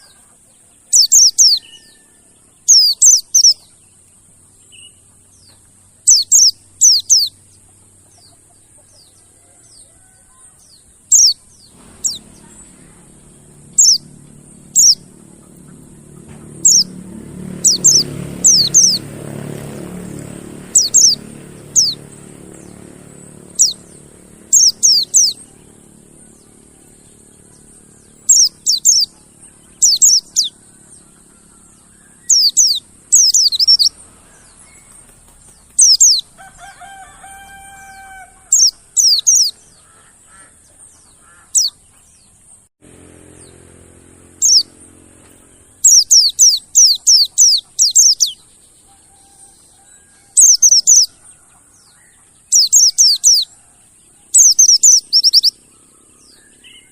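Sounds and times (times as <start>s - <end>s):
low held bird call: 11.1s - 35.0s.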